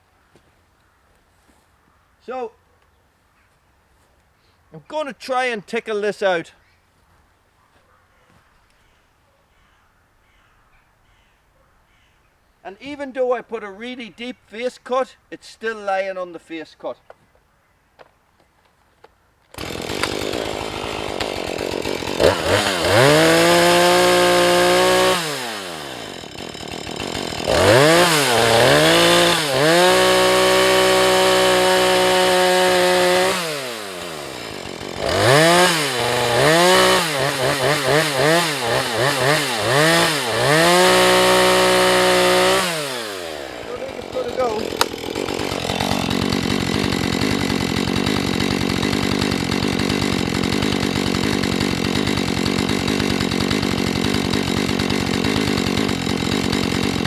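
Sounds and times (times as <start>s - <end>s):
chainsaw revving: 19.5s - 57.0s.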